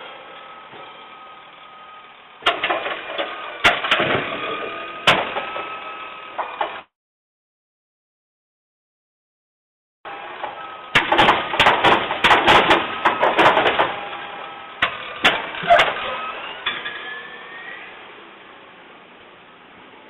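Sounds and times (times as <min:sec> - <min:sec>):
garbage truck running: 0:00.0 - 0:06.9, 0:10.1 - 0:20.0
garbage truck bangs and clattering: 0:02.4 - 0:05.7, 0:10.9 - 0:14.1, 0:14.8 - 0:17.1.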